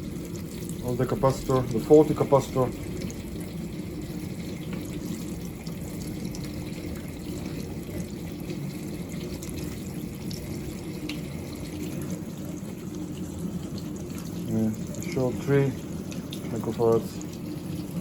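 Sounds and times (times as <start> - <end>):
water spraying and splashing: 0.0 - 12.4
dishwasher pump motor humming: 0.0 - 18.0.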